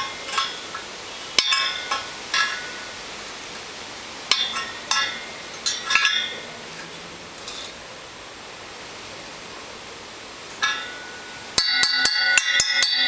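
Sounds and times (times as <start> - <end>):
metal tool tapping wire spokes: 0.0 - 2.9, 4.3 - 7.8, 10.5 - 13.0.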